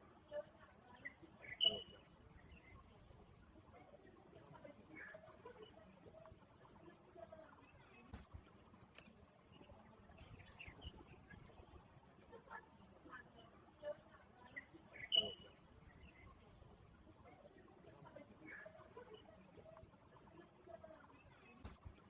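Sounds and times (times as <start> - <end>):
light clicks: 8.1 - 9.2.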